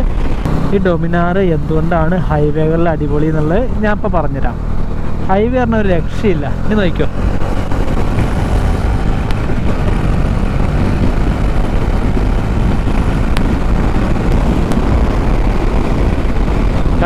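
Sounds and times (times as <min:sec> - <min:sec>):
motorcycle engine at speed: 0:00.0 - 0:17.0
rush of wind noise: 0:00.0 - 0:17.0.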